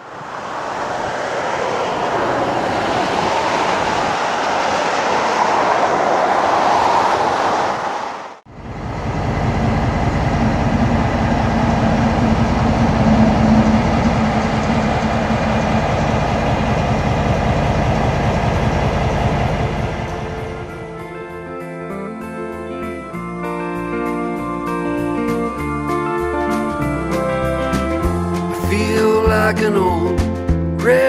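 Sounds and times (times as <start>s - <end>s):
freight cars rolling on track: 0.0s - 21.0s
locomotive diesel engine droning: 0.0s - 30.1s.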